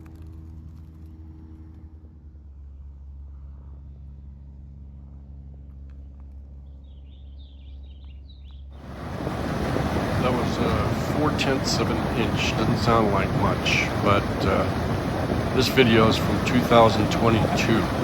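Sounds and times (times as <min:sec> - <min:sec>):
loud rushing noise: 0:08.8 - 0:18.0.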